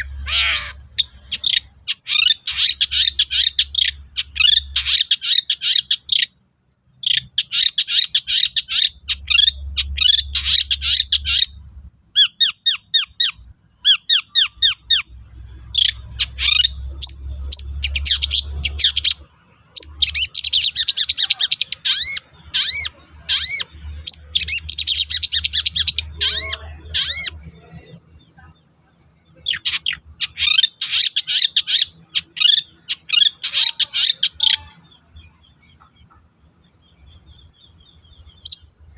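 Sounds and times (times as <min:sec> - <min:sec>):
shrike harsh chattering song: 0:00.0 - 0:06.3, 0:07.1 - 0:11.6, 0:15.7 - 0:28.0, 0:29.3 - 0:36.7.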